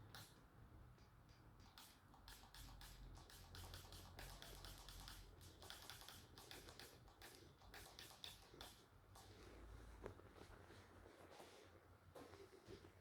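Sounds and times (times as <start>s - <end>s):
small irregular clicks: 0.0s - 9.5s.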